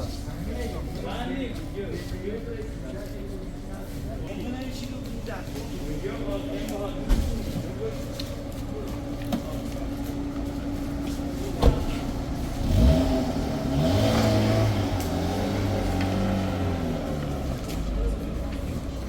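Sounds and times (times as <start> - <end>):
vehicle engine accelerating: 10.0 - 19.0.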